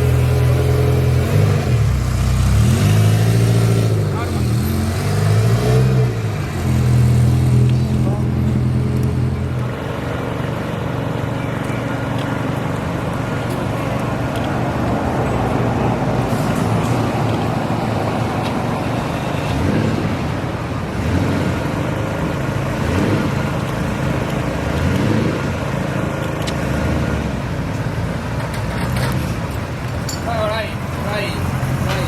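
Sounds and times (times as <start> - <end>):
engine revs: 0.0 - 10.0, 16.2 - 27.6
car engines running: 0.0 - 32.0.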